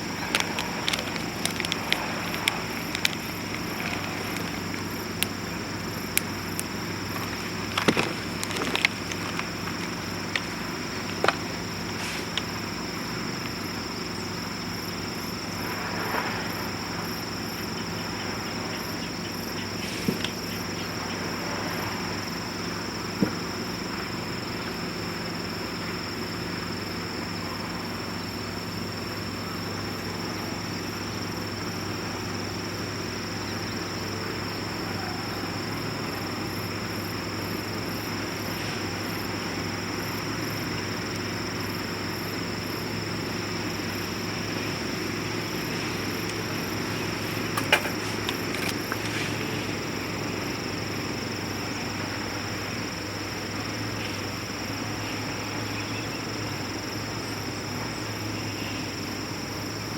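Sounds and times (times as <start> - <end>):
wood fire crackling: 0.0 - 12.7, 45.0 - 49.6
insects trilling: 0.0 - 59.9.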